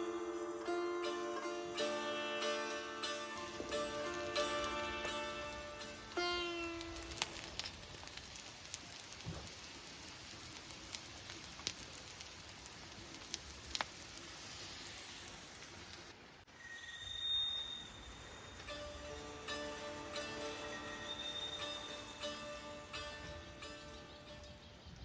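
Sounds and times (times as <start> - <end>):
rain hiss: 0.0 - 25.0
sharp drips and ticks: 3.0 - 16.2
high steady tone: 16.5 - 24.9.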